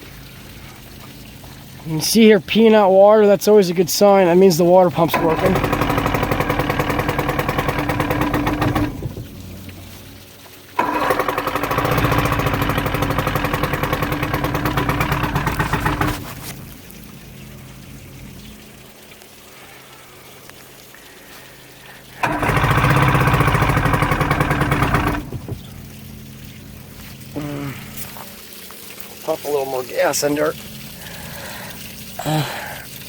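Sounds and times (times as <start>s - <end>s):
outboard motor running roughly: 4.9s - 18.8s, 21.0s - 33.0s.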